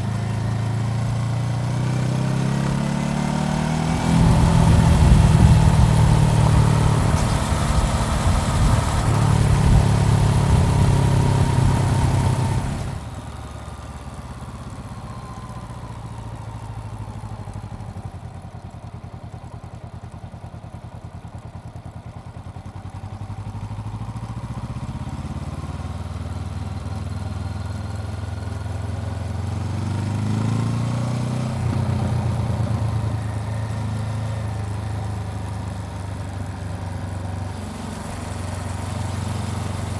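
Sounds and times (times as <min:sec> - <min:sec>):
motorcycle engine running: 0:00.0 - 0:39.9
wind hiss: 0:04.1 - 0:12.9.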